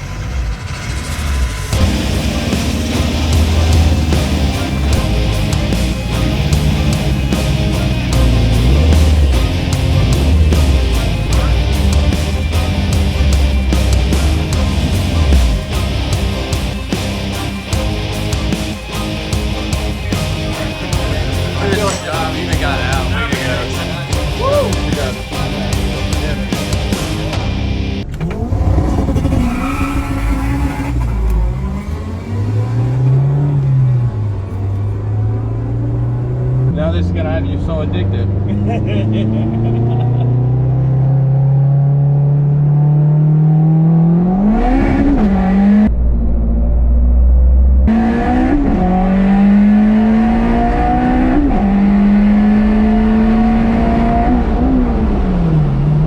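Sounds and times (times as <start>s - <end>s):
heavy metal music: 0.0s - 29.4s, 47.9s - 56.0s
car engine accelerating: 0.0s - 56.0s.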